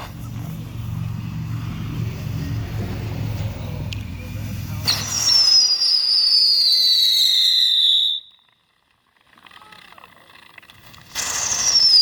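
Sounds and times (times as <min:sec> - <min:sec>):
firework whistle sliding down: 0:04.8 - 0:08.4, 0:11.2 - 0:12.0.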